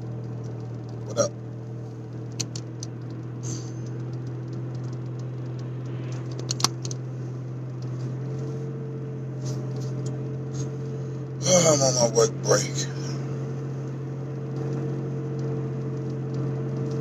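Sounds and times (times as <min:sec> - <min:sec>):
car cabin hum: 0:00.0 - 0:17.0
sharp clicks: 0:02.2 - 0:07.0.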